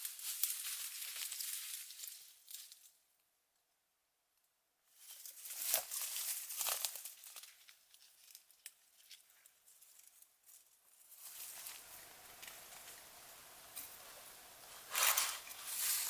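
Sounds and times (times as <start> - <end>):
dry leaves rustling: 0.0 - 2.8, 5.0 - 10.2, 11.0 - 16.0
twigs crackling: 0.0 - 2.9, 5.2 - 10.2, 11.1 - 16.0.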